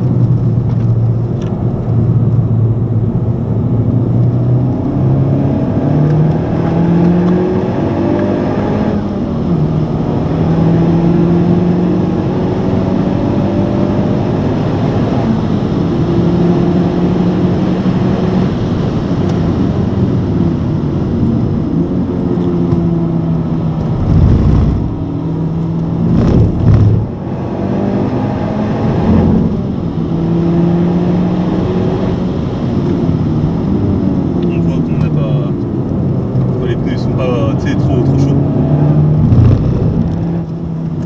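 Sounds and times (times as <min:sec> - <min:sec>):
car engine at high revs: 0:00.0 - 0:41.0
loud thumps: 0:24.0 - 0:25.0.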